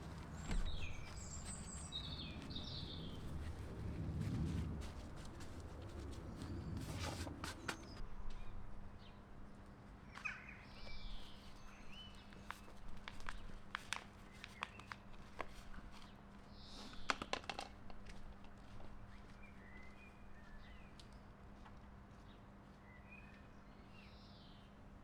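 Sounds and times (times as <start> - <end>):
small birds chirping: 0.0 - 8.0, 18.6 - 21.3.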